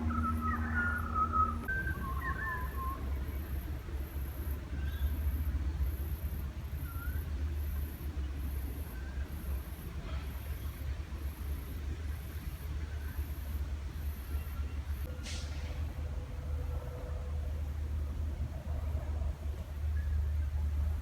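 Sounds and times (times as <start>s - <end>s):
steady low hum: 0.0s - 2.4s
birds chirping: 0.0s - 3.5s.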